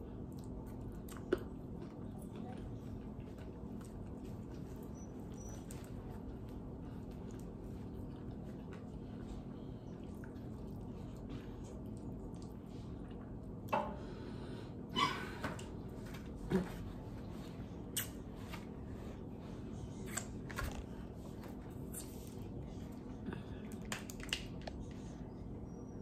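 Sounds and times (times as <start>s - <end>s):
low room hum: 0.0s - 26.0s
wet mouth chewing and smacking: 9.9s - 13.7s.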